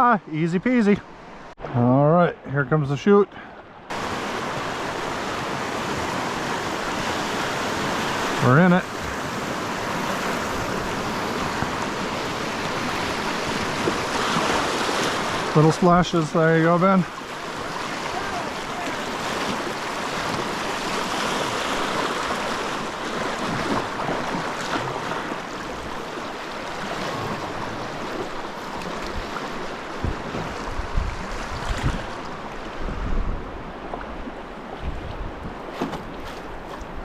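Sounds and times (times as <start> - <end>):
river water rushing through rapids: 3.9 - 32.6
wind knocks on microphone: 29.9 - 32.2, 32.8 - 34.0.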